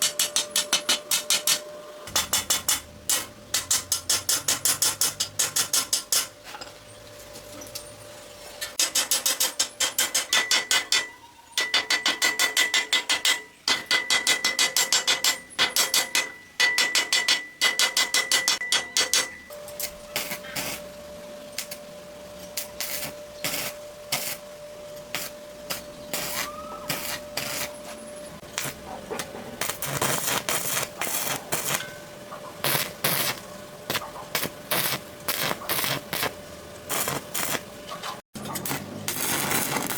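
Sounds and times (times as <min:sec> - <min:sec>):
hand tool strokes on metal: 0:25.0 - 0:32.0.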